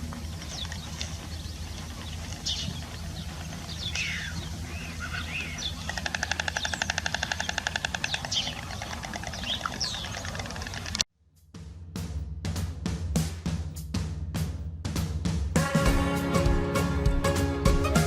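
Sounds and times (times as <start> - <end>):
bird rattling trill: 0.0 - 11.0
birds chirping: 0.0 - 11.0.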